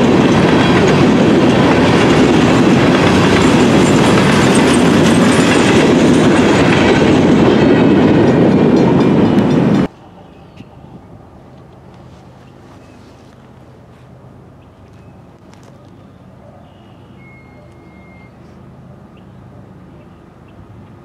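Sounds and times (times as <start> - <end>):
clickety-clack of rail joints: 0.0 - 10.8
freight train wheels rumbling: 0.0 - 21.0.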